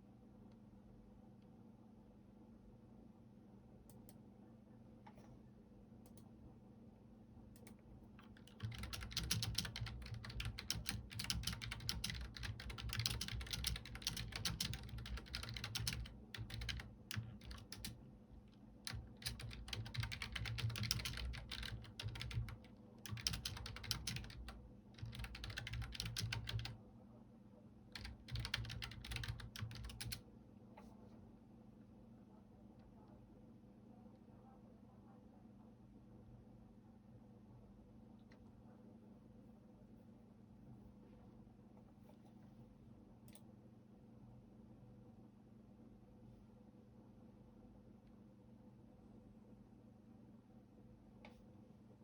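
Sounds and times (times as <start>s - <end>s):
faint low hum: 0.0s - 52.0s
typing on computer keyboard: 7.6s - 26.8s, 27.9s - 30.2s.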